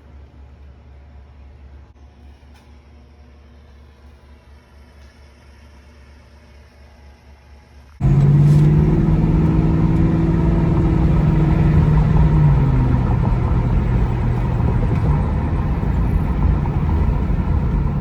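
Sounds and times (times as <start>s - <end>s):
car engine running: 8.0s - 18.0s.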